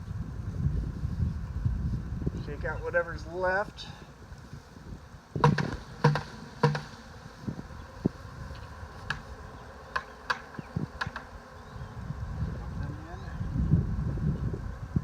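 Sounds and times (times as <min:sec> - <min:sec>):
bees buzzing: 0:00.3 - 0:15.0
loud sharp knocks: 0:05.4 - 0:06.9.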